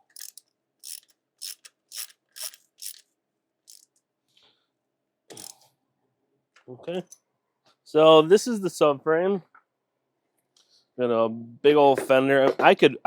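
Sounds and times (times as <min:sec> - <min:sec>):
ratchet wrench clicking: 0:00.0 - 0:03.0, 0:03.7 - 0:03.9, 0:05.3 - 0:05.6.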